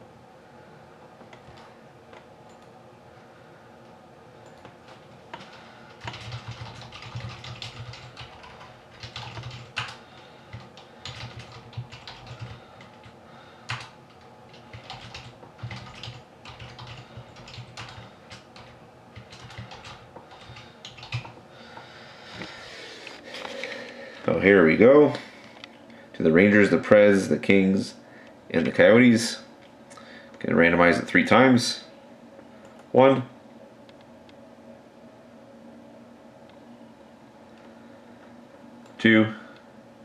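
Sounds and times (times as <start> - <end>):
typing on computer keyboard: 5.3 - 21.4.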